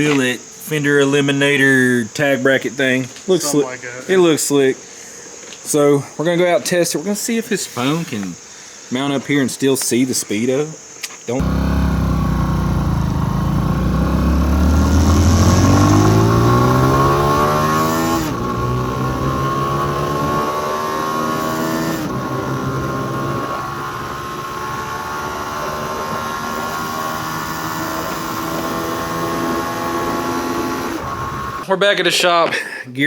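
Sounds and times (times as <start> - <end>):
mini motorcycle engine accelerating: 11.4 - 31.6.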